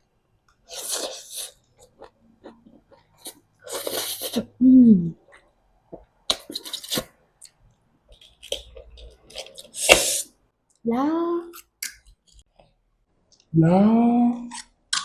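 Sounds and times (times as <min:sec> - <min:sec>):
noodle slurping: 0:00.6 - 0:04.5.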